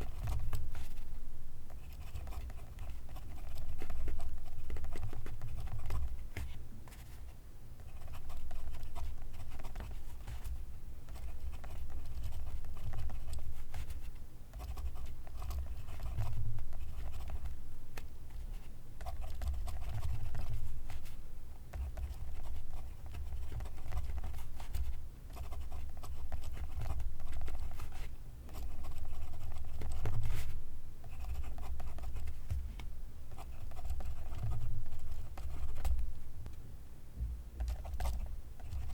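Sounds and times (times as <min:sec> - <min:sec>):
pencil writing on paper: 0:07.8 - 0:17.5, 0:21.8 - 0:32.4, 0:33.3 - 0:36.0.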